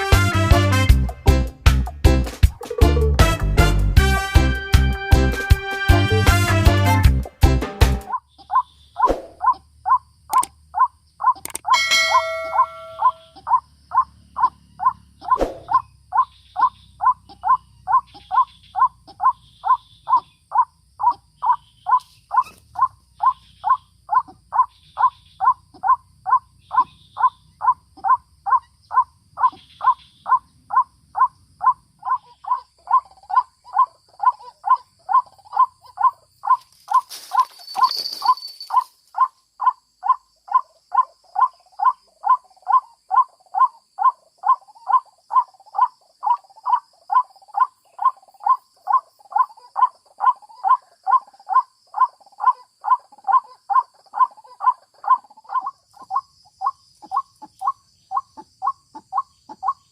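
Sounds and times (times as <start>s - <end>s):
bird calling harsh notes: 8.0s - 59.9s
rustling: 36.6s - 39.1s.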